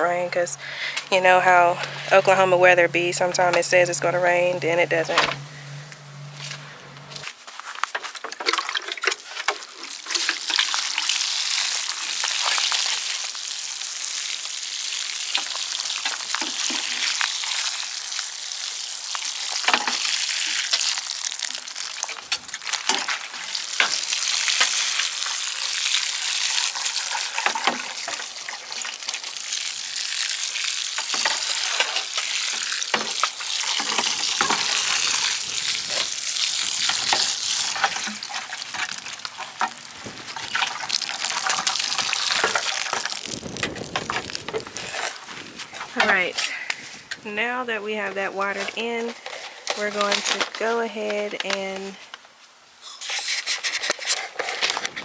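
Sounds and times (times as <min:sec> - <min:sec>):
water spraying onto soil: 0:10.4 - 0:46.2.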